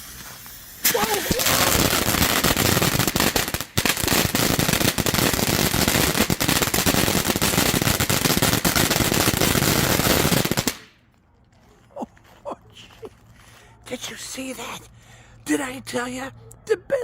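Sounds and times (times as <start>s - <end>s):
firework fountain crackling: 0.0s - 11.0s.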